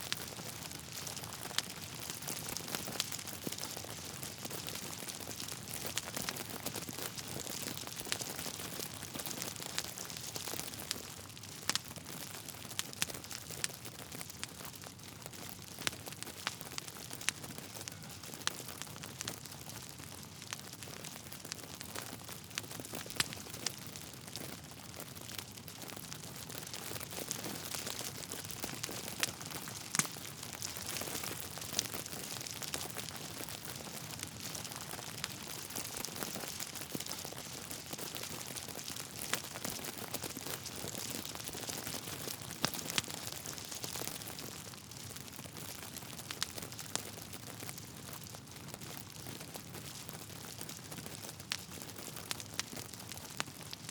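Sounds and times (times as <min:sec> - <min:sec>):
wood fire crackling: 0:00.0 - 0:53.9
sharp pops of fire: 0:26.6 - 0:37.3.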